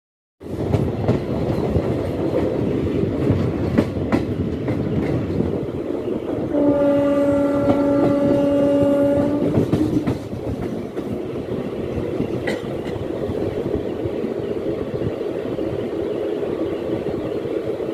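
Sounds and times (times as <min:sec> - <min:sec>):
train wheels rumbling on rails: 0:00.4 - 0:17.9
train horn blast: 0:06.4 - 0:09.9.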